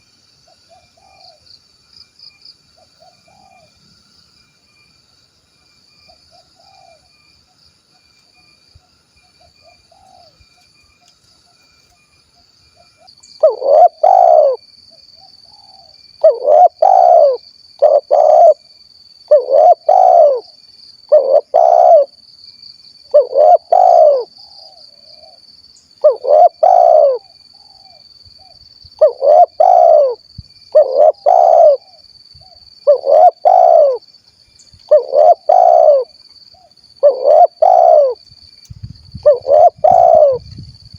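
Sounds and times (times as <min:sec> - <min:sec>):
dove cooing: 0:00.7 - 0:01.3, 0:03.0 - 0:03.7, 0:06.3 - 0:07.1, 0:13.4 - 0:14.6, 0:15.5 - 0:18.6, 0:19.3 - 0:20.5, 0:21.1 - 0:22.2, 0:23.1 - 0:25.4, 0:26.0 - 0:34.0, 0:34.9 - 0:38.2, 0:39.2 - 0:40.4.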